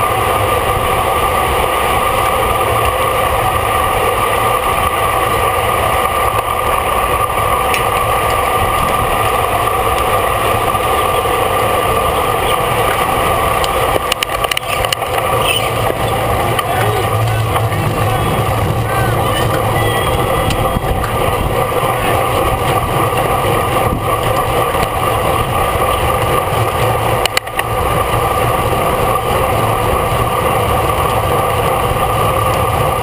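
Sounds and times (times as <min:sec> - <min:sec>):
bicycle clicks: 0:01.9 - 0:10.9, 0:11.6 - 0:18.8, 0:19.4 - 0:32.9
wind on microphone: 0:12.3 - 0:33.0.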